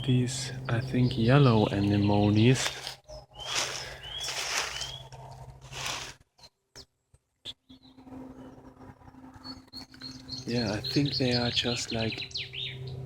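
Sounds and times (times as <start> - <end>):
small birds chirping: 0.0 - 13.0
steady low hum: 0.0 - 13.0
rustling: 2.6 - 6.3.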